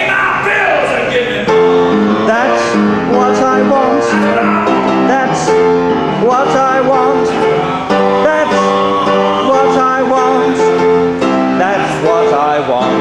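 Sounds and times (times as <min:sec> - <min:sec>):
man singing: 0:01.2 - 0:13.0.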